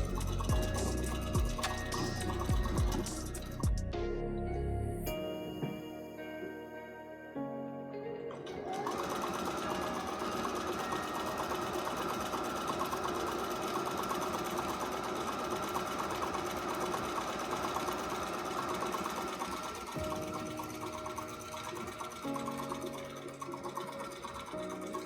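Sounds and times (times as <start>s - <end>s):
sewing machine stitching: 8.7s - 25.0s.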